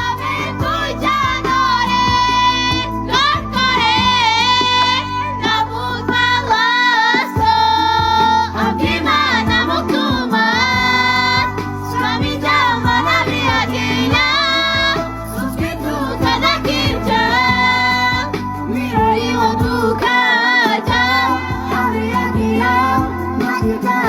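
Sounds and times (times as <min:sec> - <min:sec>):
backing band with bass: 0:00.0 - 0:24.0
high voice singing: 0:00.0 - 0:24.0.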